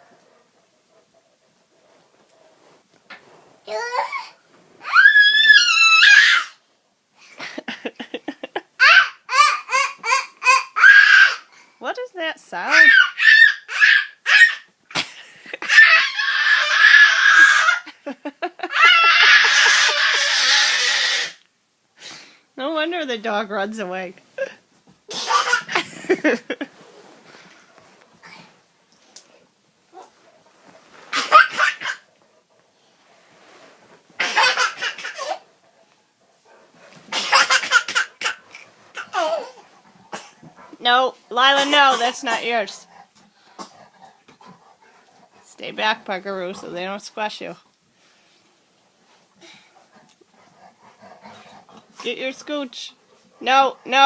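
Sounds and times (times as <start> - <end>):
person laughing hard: 7.4 - 8.7, 17.2 - 20.3.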